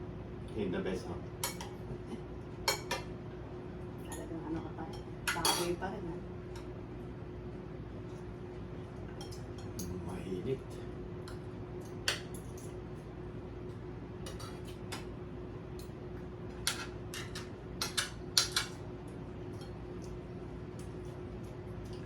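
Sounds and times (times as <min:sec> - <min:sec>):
cutlery clinking on a plate: 0:14.3 - 0:15.0, 0:16.6 - 0:18.8.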